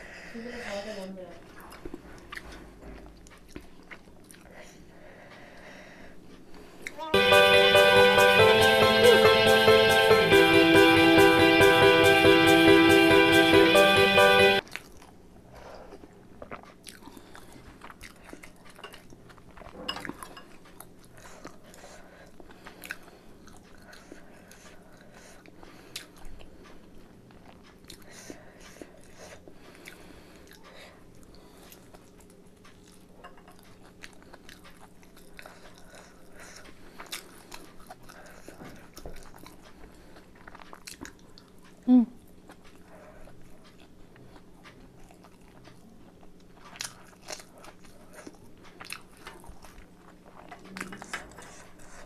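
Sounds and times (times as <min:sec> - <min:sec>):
person chewing food: 0:01.4 - 0:05.5, 0:14.6 - 0:52.0.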